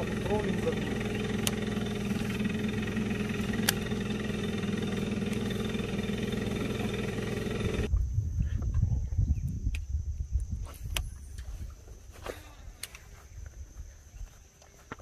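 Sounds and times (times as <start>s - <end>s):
boat engine running: 0.0s - 7.9s
sharp clicks: 1.3s - 1.7s, 3.5s - 3.9s.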